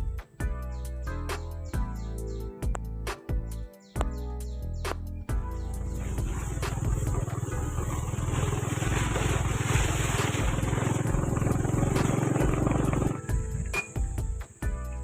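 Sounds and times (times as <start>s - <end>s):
motorcycle engine running: 5.6s - 14.6s.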